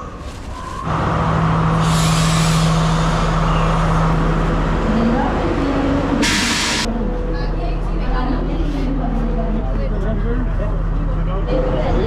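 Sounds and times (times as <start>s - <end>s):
diesel train engine drone: 0.0s - 12.0s
sharp air hiss: 6.2s - 6.9s.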